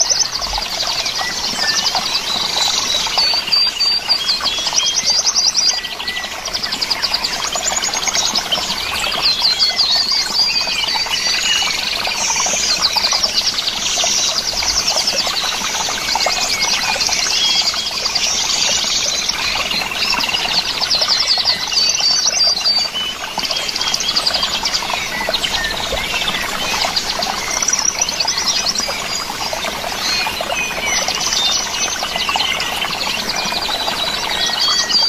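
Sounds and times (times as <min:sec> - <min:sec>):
small birds chirping and trilling: 0:00.0 - 0:35.0.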